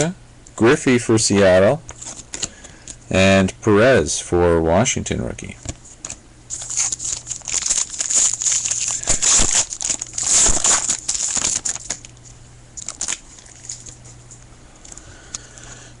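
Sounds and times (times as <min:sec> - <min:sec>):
wrapper crinkling: 0:06.0 - 0:14.3.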